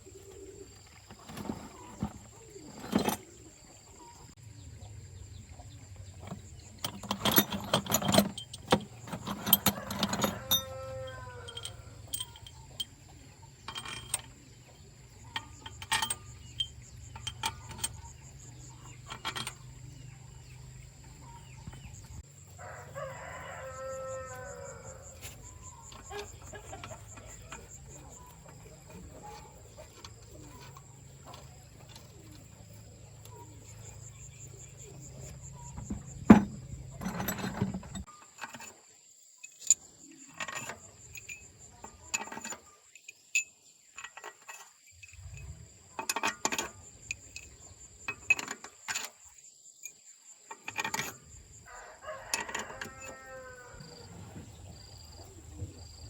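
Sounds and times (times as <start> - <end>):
rooster crowing: 9.6 - 12.0, 22.6 - 25.3, 51.7 - 54.1
sharp clicks and knocks: 35.2 - 38.7.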